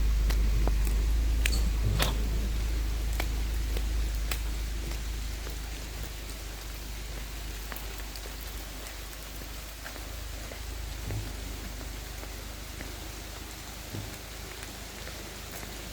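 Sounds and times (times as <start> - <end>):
low rumble: 0.0 - 8.2
rain falling steadily: 0.0 - 15.9
raindrops ticking: 0.0 - 15.9.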